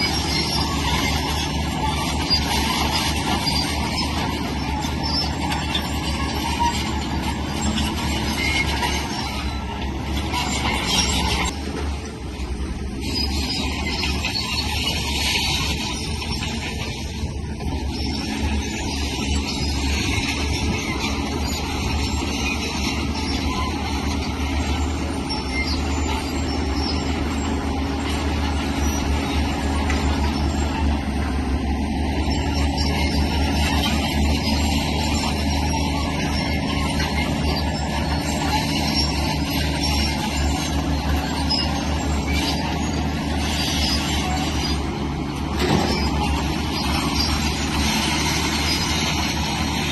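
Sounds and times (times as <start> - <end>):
diesel engine rumble: 0.0 - 49.9
metallic track clanking: 0.0 - 49.9
steel tracks squeaking: 0.0 - 49.9.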